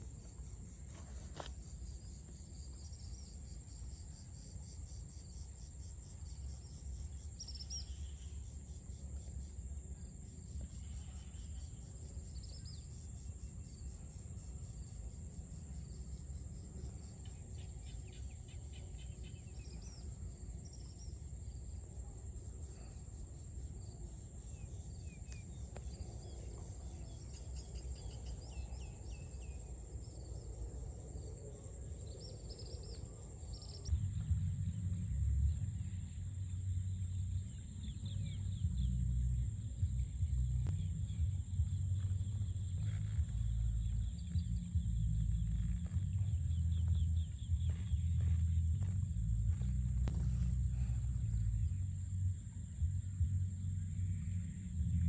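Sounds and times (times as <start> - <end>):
insect high steady trill: 0.0 - 55.0
low steady rumble: 33.4 - 55.0.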